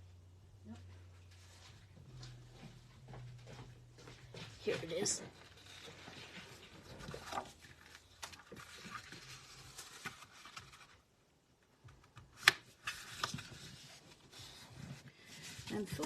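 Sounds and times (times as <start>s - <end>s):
paper rustling: 4.1s - 11.0s, 12.4s - 16.0s.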